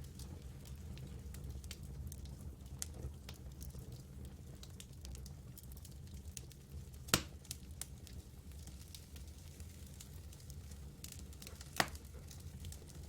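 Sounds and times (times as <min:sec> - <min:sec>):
campfire crackling: 0:00.1 - 0:13.0.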